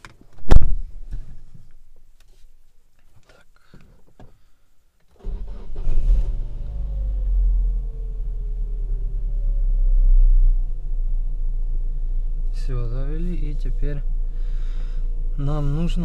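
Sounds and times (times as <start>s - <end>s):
car engine starting and idling: 5.1s - 16.0s.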